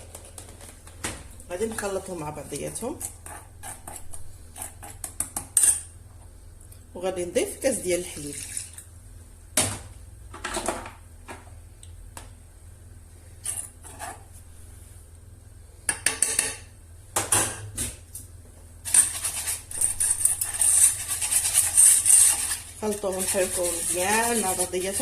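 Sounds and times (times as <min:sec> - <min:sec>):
stirring with clinks and scraping: 0:01.6 - 0:05.9, 0:13.3 - 0:14.4, 0:18.8 - 0:25.0.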